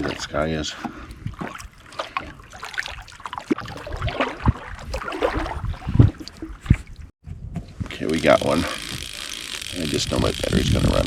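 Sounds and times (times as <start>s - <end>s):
water washing around hull: 0.0s - 7.1s.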